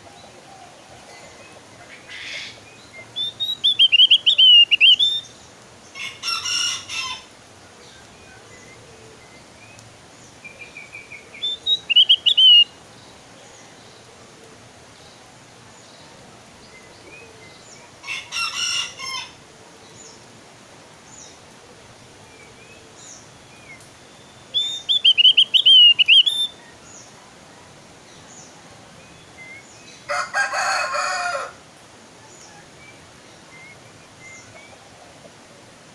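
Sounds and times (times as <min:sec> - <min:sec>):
harsh bird calls: 0:00.2 - 0:07.3, 0:10.3 - 0:12.8, 0:22.7 - 0:27.2
bird singing warbling phrases: 0:01.0 - 0:06.2, 0:07.9 - 0:13.8, 0:22.3 - 0:27.2, 0:28.1 - 0:30.1
short bird chirps: 0:11.4 - 0:12.6, 0:24.6 - 0:26.5.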